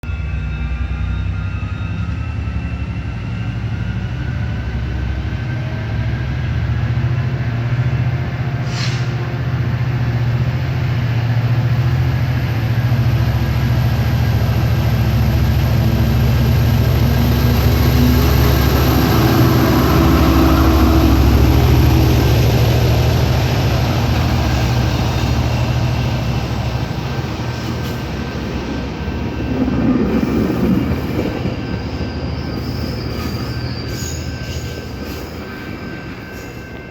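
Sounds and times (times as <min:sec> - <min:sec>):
diesel locomotive droning: 0:00.0 - 0:36.9
short hiss: 0:08.6 - 0:09.2.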